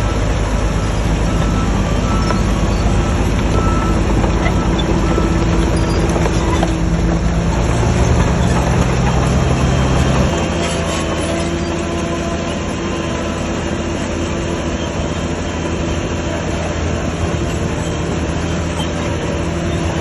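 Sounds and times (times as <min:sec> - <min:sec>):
reversing alarm beeping: 0:00.0 - 0:06.7
diesel machinery running: 0:00.0 - 0:20.0.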